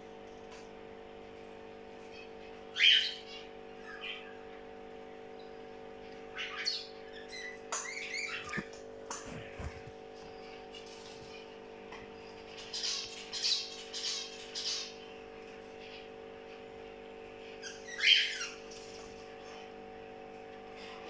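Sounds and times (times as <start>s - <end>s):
steady low hum: 0.0s - 21.0s
bird chirps: 2.7s - 4.4s, 6.3s - 8.7s, 17.6s - 18.6s.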